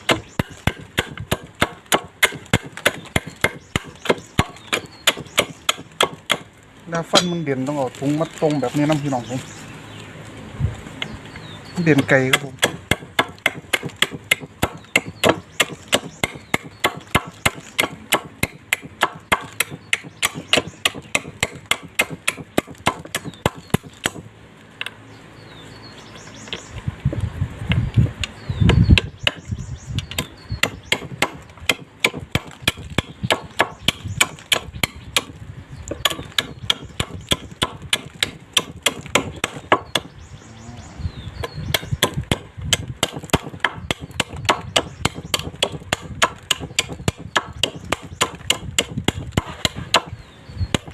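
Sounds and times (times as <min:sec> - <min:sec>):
blade chopping plastic: 0:00.0 - 0:06.5, 0:11.9 - 0:24.3, 0:30.1 - 0:40.1.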